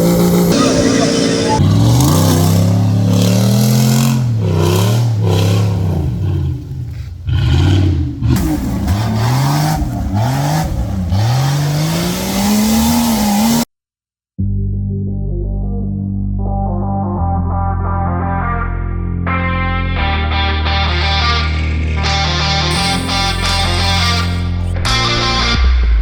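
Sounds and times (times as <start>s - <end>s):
engines revving hard: 0.0s - 13.7s, 22.7s - 24.8s.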